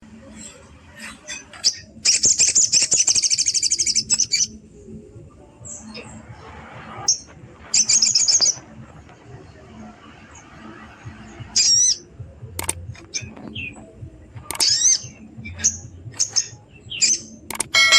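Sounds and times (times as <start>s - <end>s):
jay rattling trill call: 17.7s - 17.9s.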